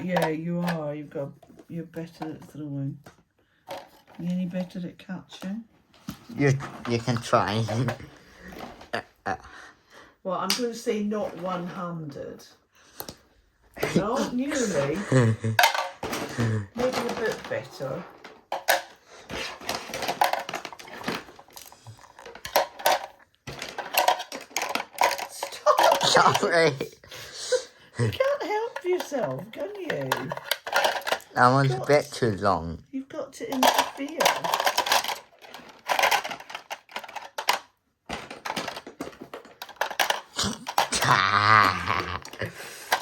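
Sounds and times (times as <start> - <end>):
toy train pieces clattering: 6.9 - 9.0, 13.8 - 26.8, 28.2 - 32.3, 33.4 - 43.0.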